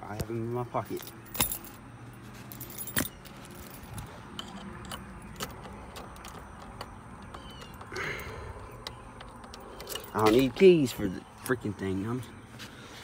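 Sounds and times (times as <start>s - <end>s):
keys jingling: 0.8s - 7.8s, 9.2s - 10.6s.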